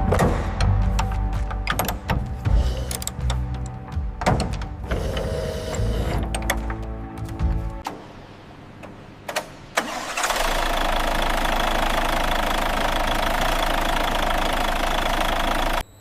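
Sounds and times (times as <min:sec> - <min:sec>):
diesel truck engine running: 0:09.9 - 0:15.8.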